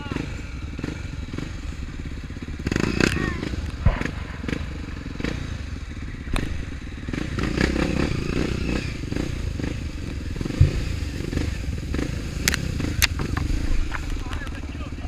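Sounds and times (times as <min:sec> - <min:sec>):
motorcycle engine running: 0:00.0 - 0:15.0
low thud: 0:03.6 - 0:07.2.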